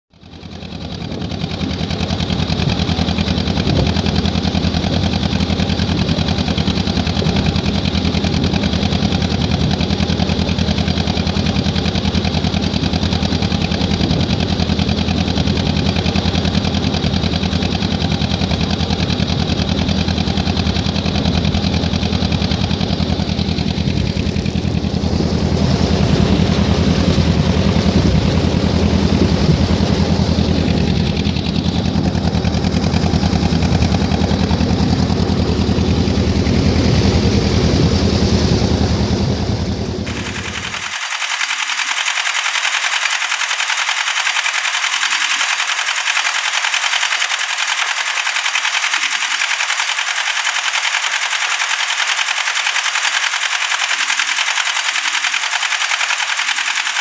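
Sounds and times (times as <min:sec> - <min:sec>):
boat diesel engine running: 0:00.1 - 0:57.0.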